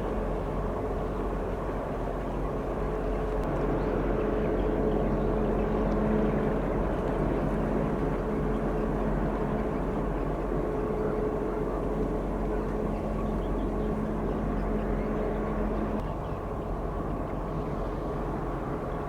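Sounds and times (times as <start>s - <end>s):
ship engine droning: 0.0s - 19.0s.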